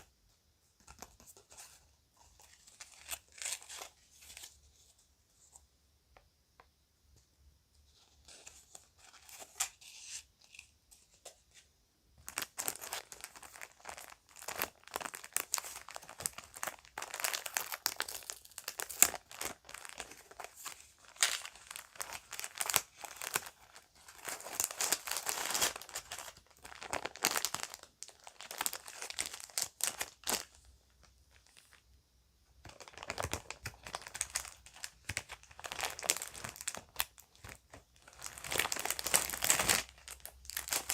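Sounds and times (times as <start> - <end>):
plastic bag crinkling: 12.2 - 30.6, 32.7 - 40.9.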